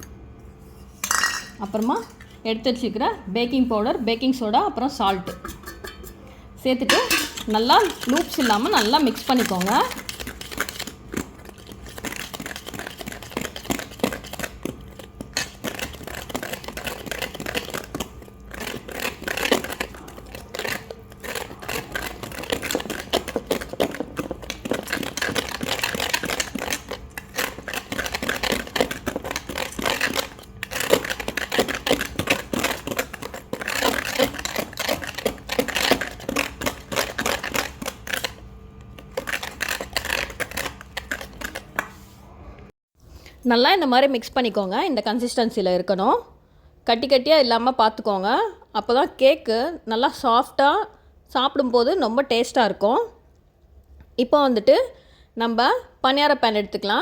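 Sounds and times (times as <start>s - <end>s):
utensil scraping bowl: 6.9s - 42.1s.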